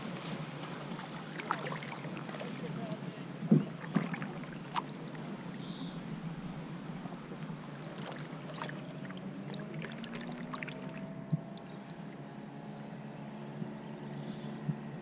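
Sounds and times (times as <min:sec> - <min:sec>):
water drips and splashes: 0:00.0 - 0:06.0, 0:07.3 - 0:12.3
faint low hum rising in pitch: 0:00.0 - 0:15.0
paddle strokes through water: 0:00.0 - 0:15.0.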